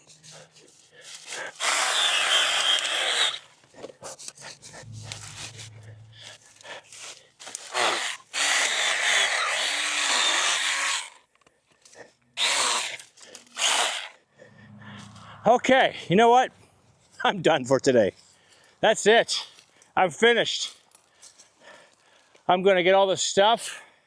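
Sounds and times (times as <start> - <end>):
chainsaw cutting branches: 0.0 - 3.6, 4.2 - 11.2, 12.4 - 14.2.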